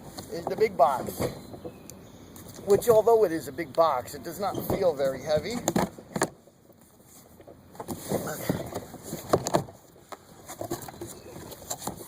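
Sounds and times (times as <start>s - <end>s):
cardboard rustling and scraping: 4.6s - 12.0s.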